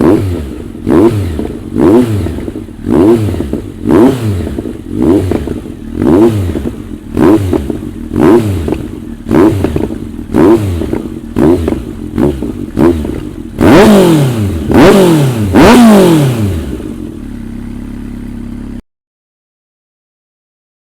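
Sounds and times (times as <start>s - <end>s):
motorcycle engine idling: 0.0s - 18.8s
motorcycle engine revving: 0.0s - 18.8s
exhaust pops and crackles: 8.6s - 13.6s.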